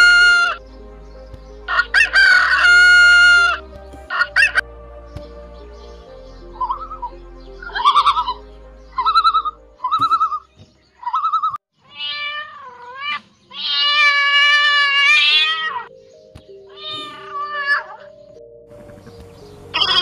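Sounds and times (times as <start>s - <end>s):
background music: 0.0s - 11.0s, 13.9s - 20.0s
cat meowing: 11.2s - 15.9s, 16.7s - 18.1s.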